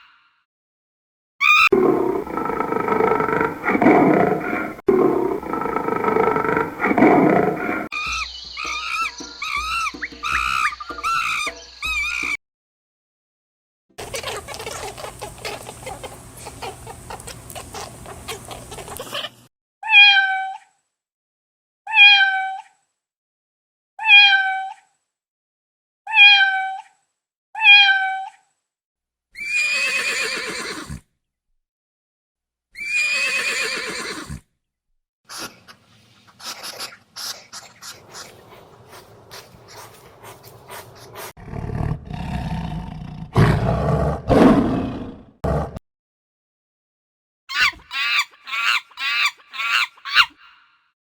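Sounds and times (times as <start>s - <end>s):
cat meowing: 21.9s - 22.6s, 24.0s - 24.8s, 26.1s - 26.8s, 27.6s - 28.3s.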